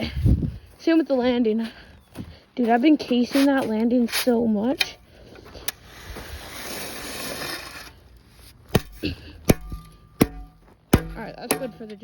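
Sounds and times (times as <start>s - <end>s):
shovel scraping gravel: 3.0s - 4.8s, 5.4s - 9.1s
shovel knocking on gravel: 8.7s - 12.0s.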